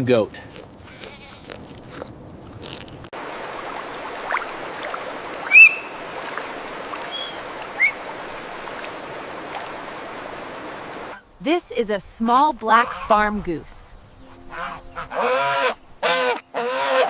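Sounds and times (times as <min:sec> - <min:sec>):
running water rushing: 0:03.2 - 0:11.2
bird chirps: 0:05.5 - 0:06.0, 0:07.1 - 0:08.0.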